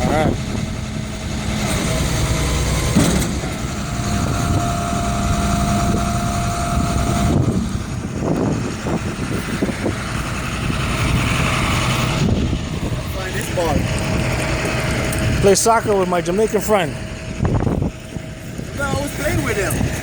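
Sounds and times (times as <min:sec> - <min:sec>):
steady whine: 0:00.0 - 0:20.0
truck engine running: 0:00.0 - 0:20.0.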